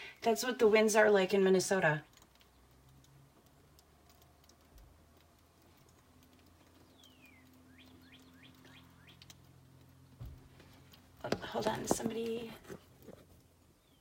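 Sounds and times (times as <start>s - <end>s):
faint ticks: 2.1s - 11.1s.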